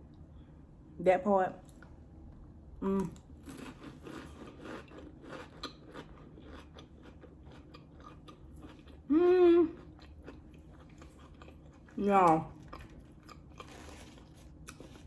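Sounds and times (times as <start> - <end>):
cracker crunching and chewing: 3.0 - 15.0
person humming mmm: 9.1 - 9.8.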